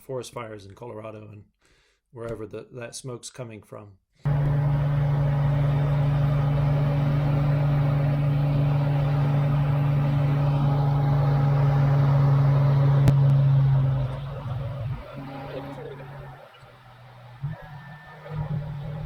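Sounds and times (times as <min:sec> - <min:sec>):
aircraft engine and propeller droning: 0:04.3 - 0:19.0.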